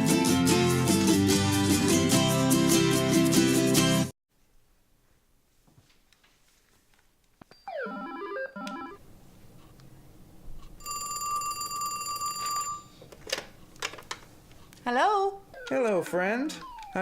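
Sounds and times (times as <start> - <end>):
telephone ringing: 7.6 - 9.0, 10.8 - 13.0, 15.5 - 17.0.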